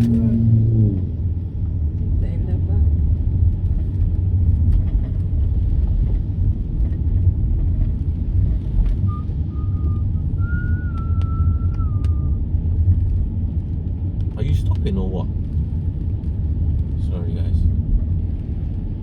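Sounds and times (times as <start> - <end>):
car road and engine rumble: 0.0 - 19.0
faint thin whistle tone: 9.0 - 12.4.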